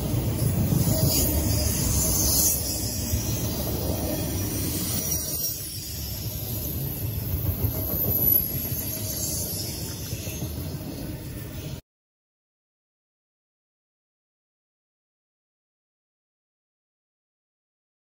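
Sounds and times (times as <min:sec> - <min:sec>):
train wheels rumbling on rail: 0:00.0 - 0:11.8.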